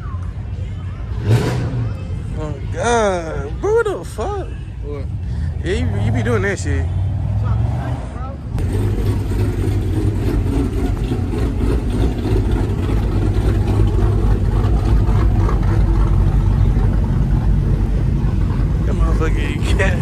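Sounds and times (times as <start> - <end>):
car engine running: 8.4 - 20.0.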